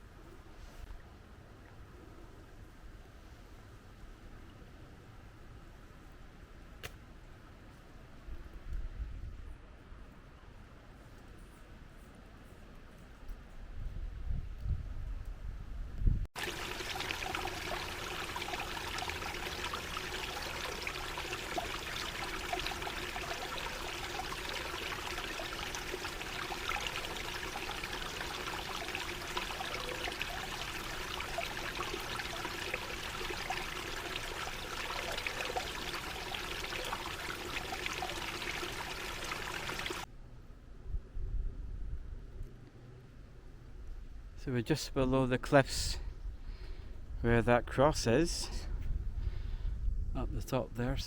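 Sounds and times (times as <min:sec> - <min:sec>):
river water rushing: 0:16.4 - 0:40.0.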